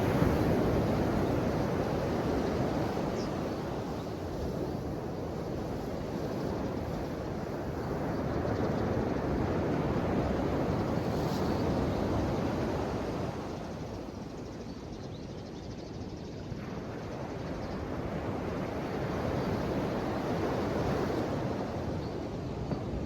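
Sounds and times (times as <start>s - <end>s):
ocean waves washing on shore: 0.0s - 14.0s.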